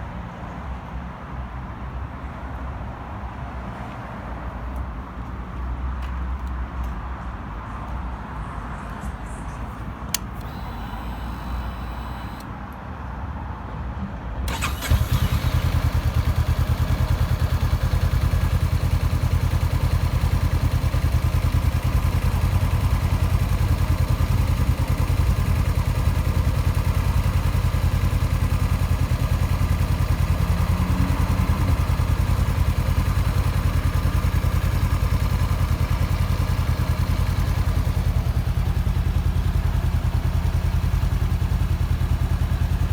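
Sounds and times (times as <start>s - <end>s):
motorcycle engine starting and idling: 10.1s - 12.5s, 14.5s - 42.9s.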